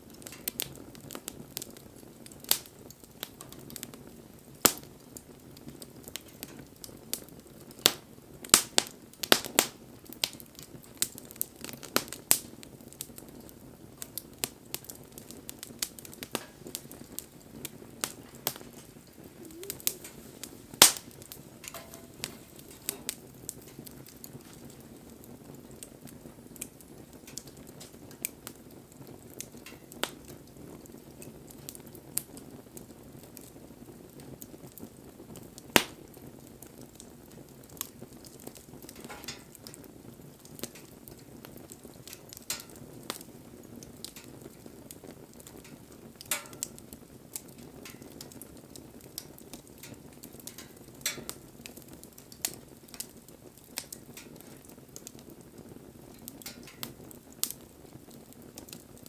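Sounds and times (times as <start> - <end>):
burning wood crackling and popping: 0.0 - 59.0
rush of flames: 14.0 - 32.2.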